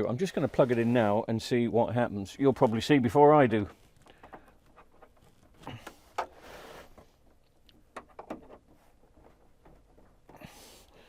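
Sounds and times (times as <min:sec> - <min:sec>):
handling knocks and rustles: 0:02.6 - 0:10.8.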